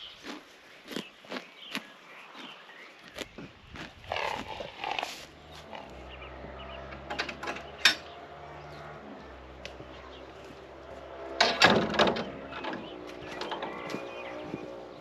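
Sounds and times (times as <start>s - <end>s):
steady low hum: 4.2s - 15.0s
sharp knocks: 11.4s - 13.8s.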